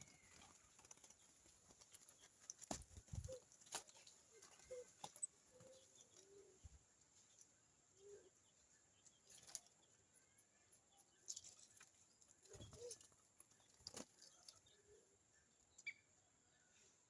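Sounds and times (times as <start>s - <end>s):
birds tapping and fluttering: 0.0s - 7.6s, 9.0s - 15.0s
faint bird chirp: 0.0s - 17.0s.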